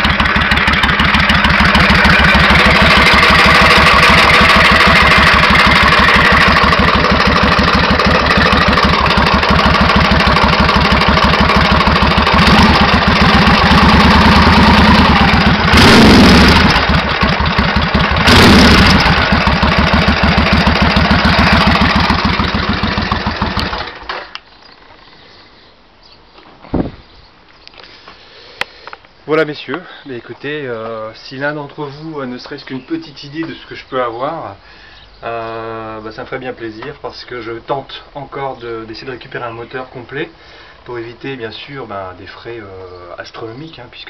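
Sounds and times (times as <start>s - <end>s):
motorcycle engine idling: 0.0s - 24.1s.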